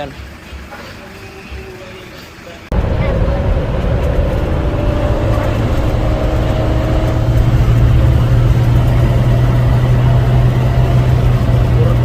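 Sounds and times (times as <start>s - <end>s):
road noise: 0.0s - 12.0s
diesel truck engine driving: 2.4s - 12.0s.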